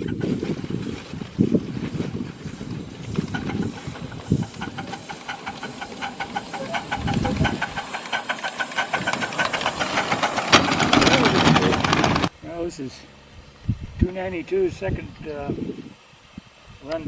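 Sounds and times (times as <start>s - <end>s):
steam exhaust beat: 0.0s - 12.3s
steam locomotive hissing: 0.0s - 12.3s.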